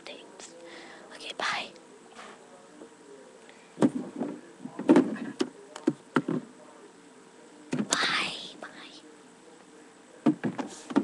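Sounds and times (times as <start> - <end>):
faint steady hum: 0.0 - 11.0
irregular knocks and thumps: 10.2 - 11.0.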